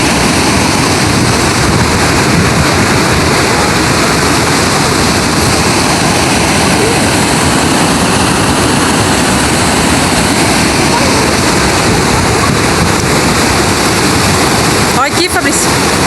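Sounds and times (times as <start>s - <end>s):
water rushing over a dam: 0.0s - 16.0s.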